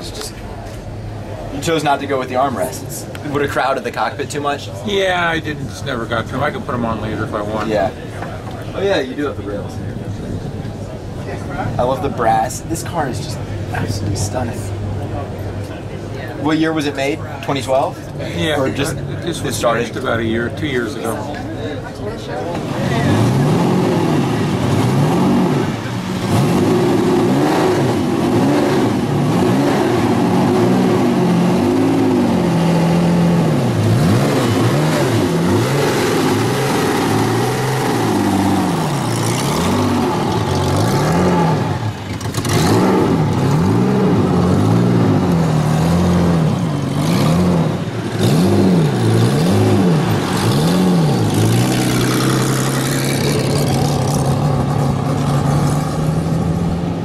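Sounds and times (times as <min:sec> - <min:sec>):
engine revving: 0:22.6 - 0:57.0.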